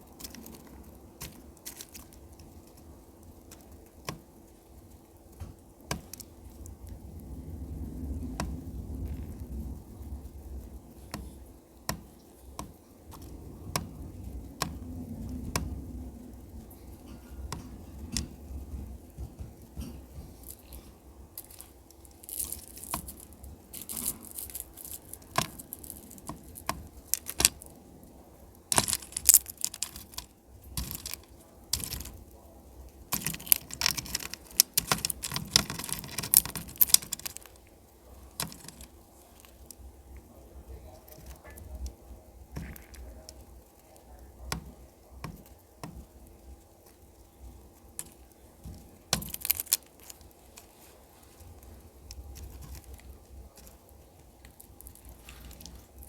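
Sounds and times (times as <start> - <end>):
bird cracking seeds with beak: 19.9 - 27.8, 28.5 - 32.3, 33.0 - 39.9, 47.9 - 50.7.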